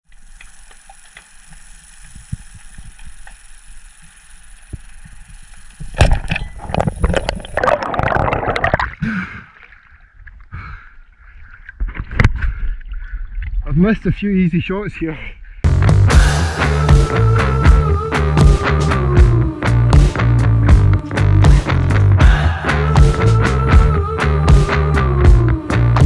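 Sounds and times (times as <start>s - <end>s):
water splashing and bubbling: 6.6s - 9.0s.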